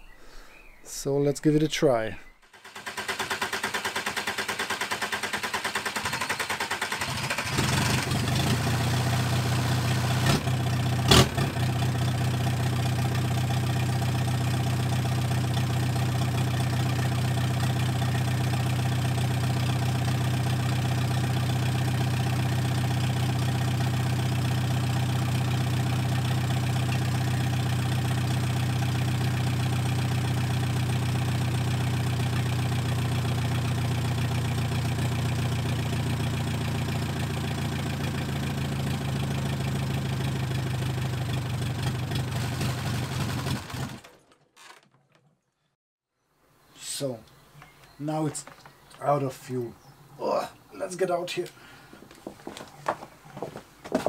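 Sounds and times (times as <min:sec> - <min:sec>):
diesel engine cranking on starter: 0:02.4 - 0:44.3
diesel engine idling: 0:02.5 - 0:43.9.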